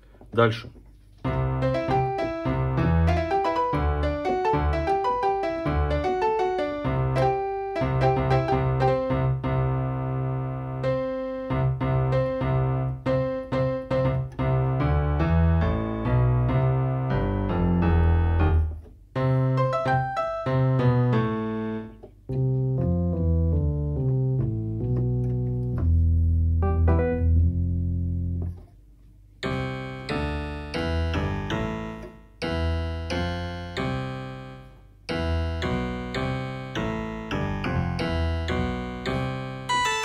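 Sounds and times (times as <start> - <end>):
keyboard melody over bass: 1.2 - 28.6, 29.4 - 40.0
keyboard repeated chords: 1.2 - 28.6, 29.3 - 40.0.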